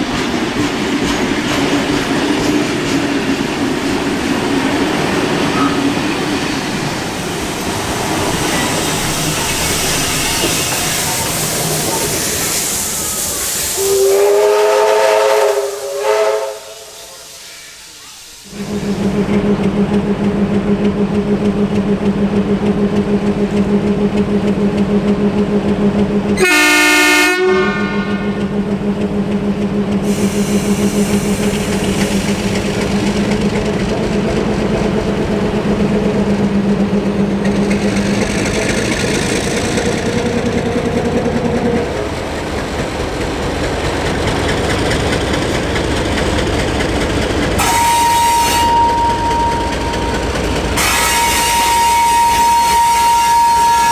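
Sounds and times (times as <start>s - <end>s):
train engine drone: 0.0s - 53.9s
train horn blast: 13.8s - 17.3s, 26.4s - 28.4s, 47.6s - 53.9s.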